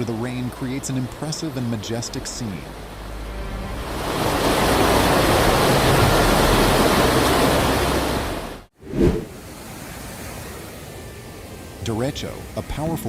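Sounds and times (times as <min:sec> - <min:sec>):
waterfall rushing: 0:00.6 - 0:08.5.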